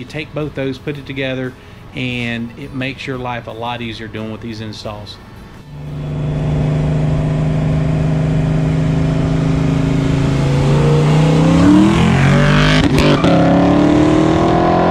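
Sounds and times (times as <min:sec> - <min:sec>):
car engine accelerating: 0:05.6 - 0:14.9.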